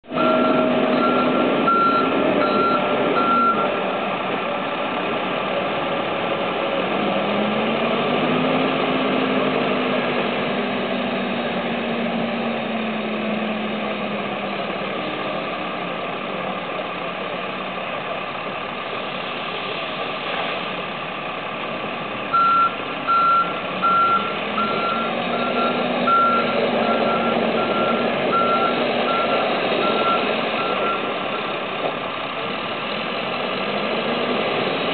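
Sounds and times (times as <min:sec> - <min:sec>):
diesel engines working: 0:00.0 - 0:34.9
reversing alarm beeping: 0:00.1 - 0:03.8, 0:22.3 - 0:31.4.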